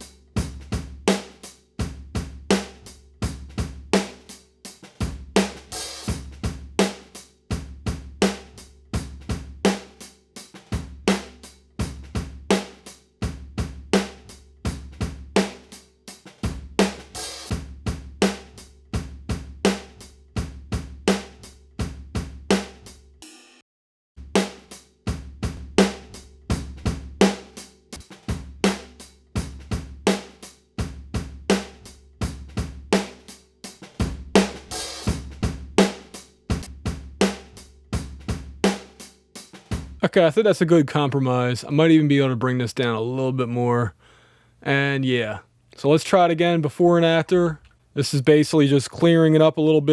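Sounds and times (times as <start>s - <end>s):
drum kit playing a steady beat: 0.0s - 23.6s, 24.2s - 40.4s.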